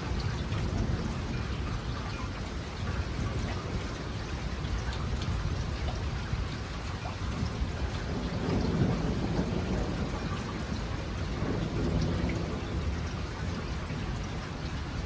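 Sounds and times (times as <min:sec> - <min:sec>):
steady rain falling: 0:00.0 - 0:15.0
thunder rumbling: 0:07.4 - 0:15.0.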